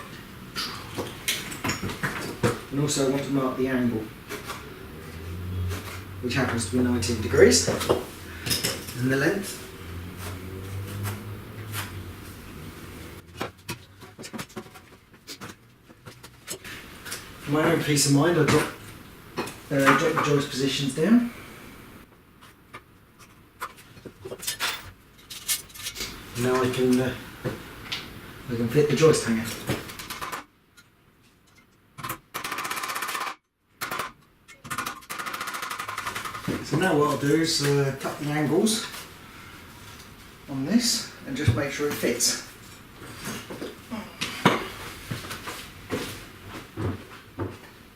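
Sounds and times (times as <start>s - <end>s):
steady low hum: 0.0s - 22.1s.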